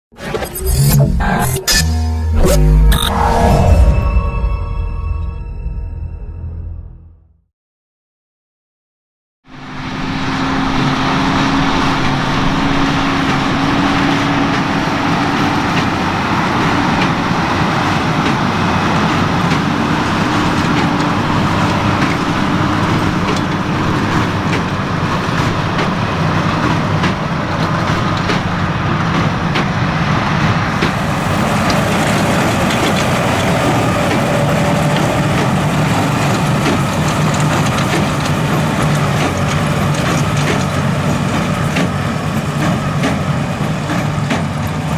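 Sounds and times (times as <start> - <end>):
baler machinery working straw: 9.5 - 44.9
tractor engine under load: 9.5 - 44.9.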